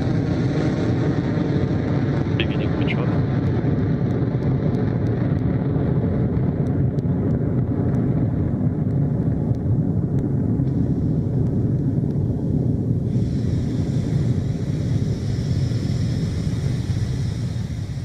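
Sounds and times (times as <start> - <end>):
rocket engines deep rumble: 0.0 - 18.0
high rocket hiss: 13.0 - 18.0.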